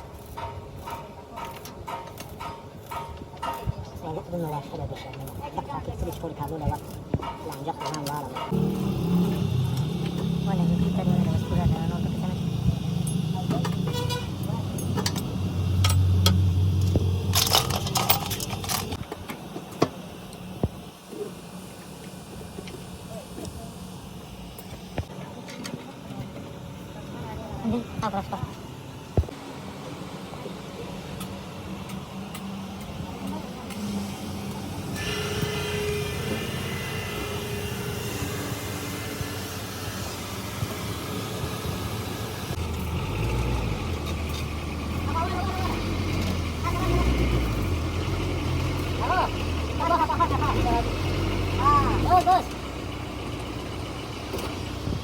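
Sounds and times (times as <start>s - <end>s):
tools knocking and clicking: 0.2s - 4.0s, 6.6s - 8.6s, 14.7s - 19.9s
low hum: 8.4s - 19.0s
motor running: 8.5s - 19.0s.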